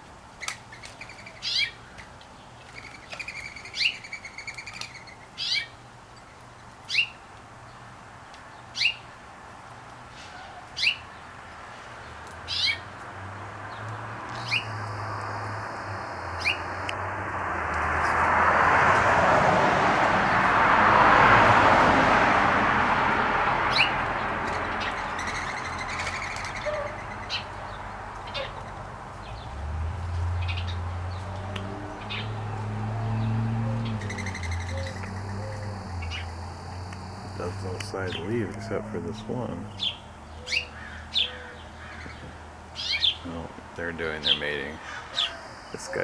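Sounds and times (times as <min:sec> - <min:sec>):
songbird chirping: 0:06.9 - 0:09.1, 0:10.2 - 0:17.0, 0:23.6 - 0:46.0
broad rushing noise: 0:12.9 - 0:39.8.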